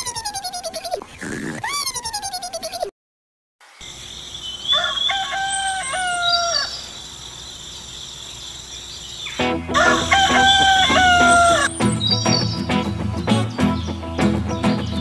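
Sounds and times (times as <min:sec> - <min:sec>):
high bird chirps: 0:00.0 - 0:01.0, 0:01.6 - 0:02.9, 0:03.8 - 0:15.0
rooster crowing: 0:04.6 - 0:07.0, 0:09.7 - 0:11.7
music: 0:09.4 - 0:15.0.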